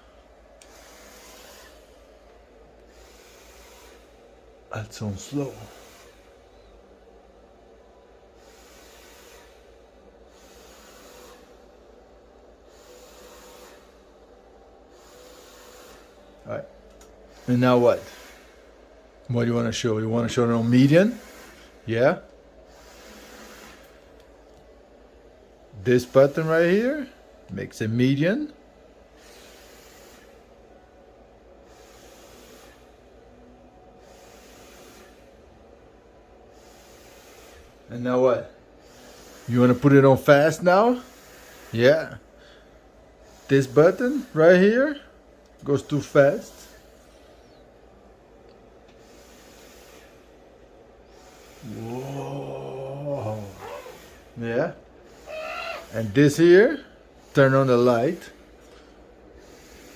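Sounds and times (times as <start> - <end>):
ceiling fan humming: 0.0 - 59.9
fan soft hiss: 0.0 - 59.9
low motor hum: 51.3 - 54.2.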